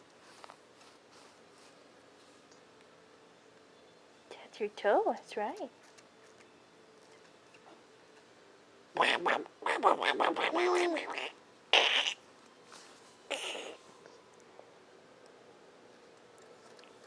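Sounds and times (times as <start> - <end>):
woman doing duck voice: 9.0 - 12.2.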